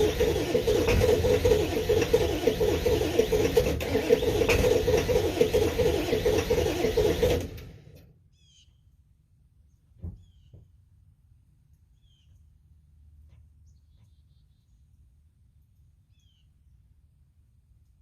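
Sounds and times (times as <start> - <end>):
diesel engine running: 0.0 - 8.0
faint bird chirps: 8.3 - 8.9, 9.7 - 10.6, 11.9 - 12.5, 13.6 - 15.0, 16.0 - 16.6
short thump: 10.0 - 10.7.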